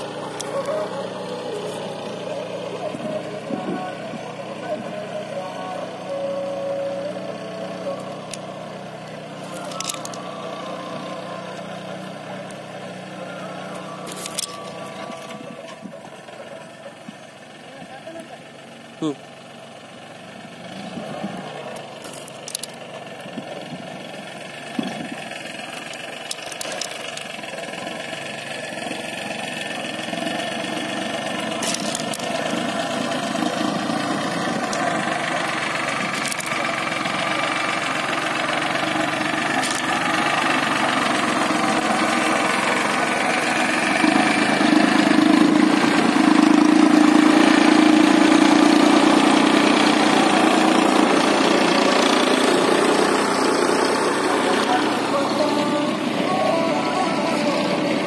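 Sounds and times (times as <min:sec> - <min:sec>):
tractor engine running: 0:00.0 - 0:58.0
sharp clicks: 0:09.5 - 0:10.2, 0:21.7 - 0:22.9, 0:25.7 - 0:27.4, 0:31.6 - 0:32.5, 0:36.1 - 0:36.7.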